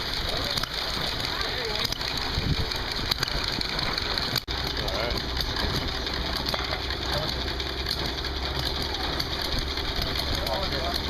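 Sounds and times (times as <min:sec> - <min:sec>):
distant crowd voices: 0:00.0 - 0:11.0
low engine hum: 0:00.0 - 0:11.0.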